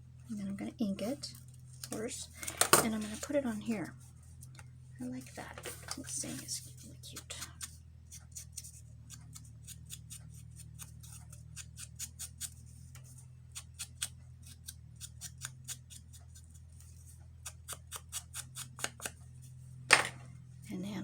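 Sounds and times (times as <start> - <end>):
scissors snipping paper: 7.1 - 12.6, 13.5 - 16.6.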